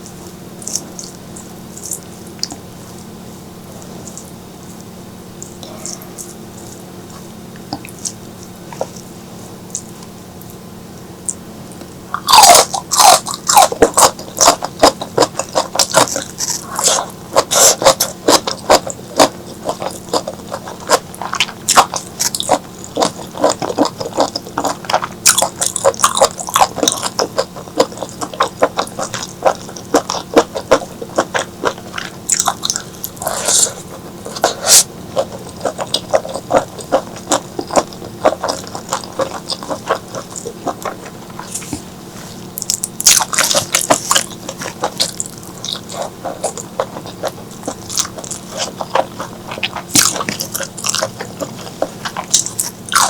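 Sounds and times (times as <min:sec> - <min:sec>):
wet chewing and biting: 0:00.0 - 0:03.1, 0:11.3 - 0:53.0
slurping: 0:30.4 - 0:42.4.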